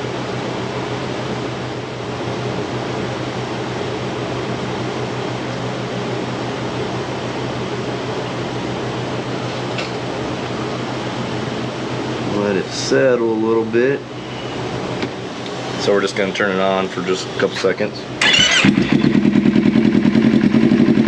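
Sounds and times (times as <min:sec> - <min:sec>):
fan whooshing with low hum: 0:00.0 - 0:21.0.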